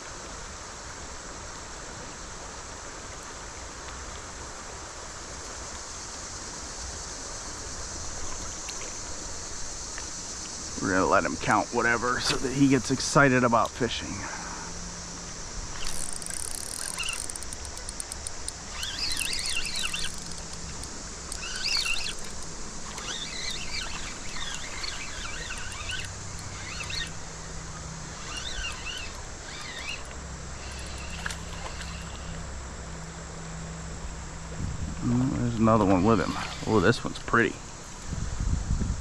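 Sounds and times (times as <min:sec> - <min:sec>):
steady hiss: 0:04.3 - 0:38.2
birds chirping: 0:15.8 - 0:32.4.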